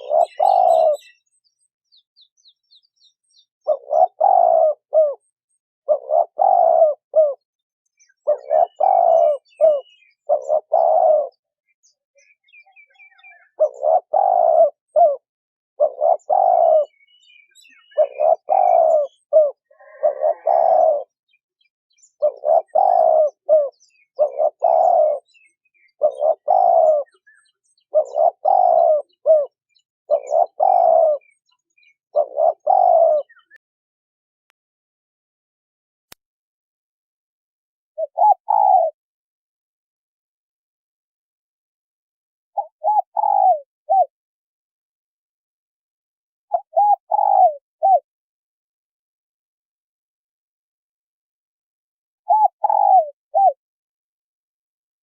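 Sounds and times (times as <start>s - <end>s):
dove cooing: 0.0s - 1.3s, 3.6s - 11.5s, 12.8s - 21.3s, 22.1s - 33.6s, 38.0s - 39.0s, 42.6s - 44.1s, 46.5s - 48.1s, 52.3s - 53.6s.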